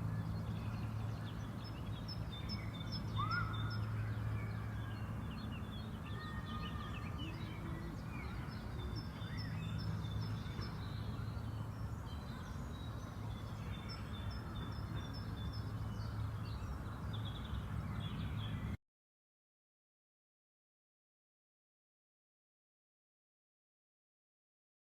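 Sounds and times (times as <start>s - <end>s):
songbirds chirping and singing: 0.0s - 18.8s.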